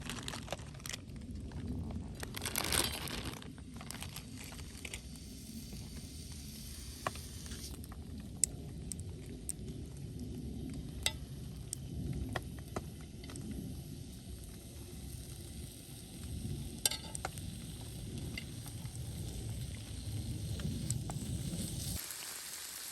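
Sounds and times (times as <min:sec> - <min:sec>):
low rumble: 0:00.0 - 0:21.9
meat sizzling in a pan: 0:04.2 - 0:07.9, 0:10.8 - 0:22.9.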